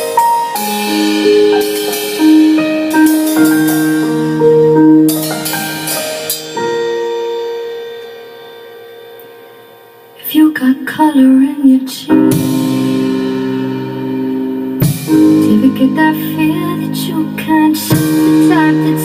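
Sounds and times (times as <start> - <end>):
piano playing chords: 0.0 - 19.0.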